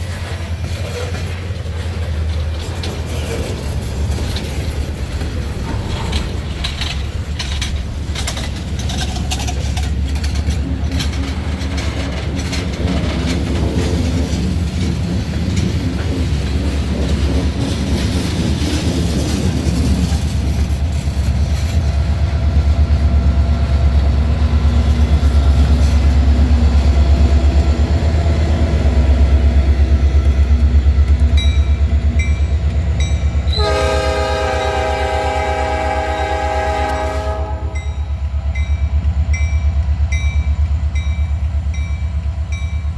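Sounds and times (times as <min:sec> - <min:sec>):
diesel locomotive engine rumble: 0:00.0 - 0:42.9
rail traffic noise: 0:00.0 - 0:42.9
locomotive air horn chord: 0:33.5 - 0:37.9.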